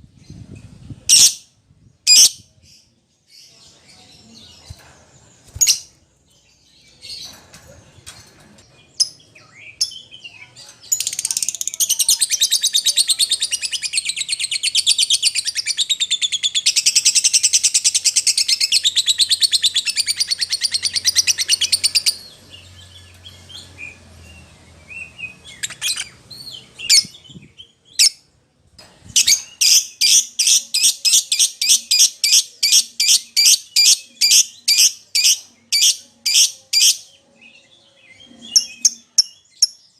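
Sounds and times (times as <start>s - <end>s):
lovebird chirping and chattering: 1.0s - 1.4s, 2.1s - 2.4s, 9.0s - 24.4s, 25.0s - 28.2s, 29.1s - 37.1s.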